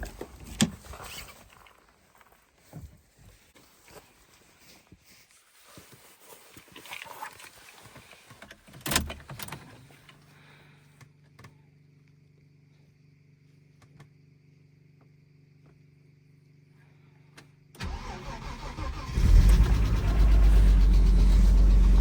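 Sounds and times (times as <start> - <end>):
handling noises: 0.0 - 10.2.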